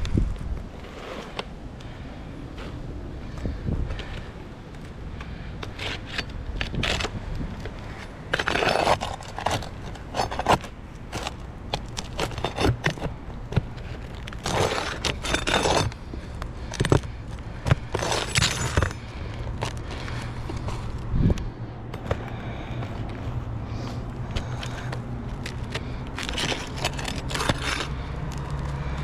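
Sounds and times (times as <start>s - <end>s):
metal tool scraping shingles: 7.9s - 13.1s, 13.8s - 20.3s, 25.7s - 28.0s.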